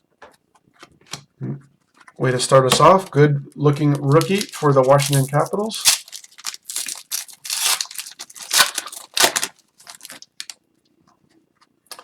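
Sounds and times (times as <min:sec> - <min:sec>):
cards and packaging rustling: 0:01.8 - 0:10.6.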